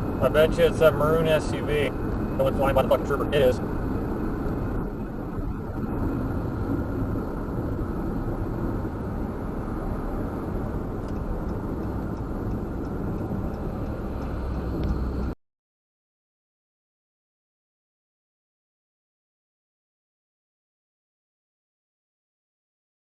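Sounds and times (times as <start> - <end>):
car road and engine noise: 0.0 - 15.4.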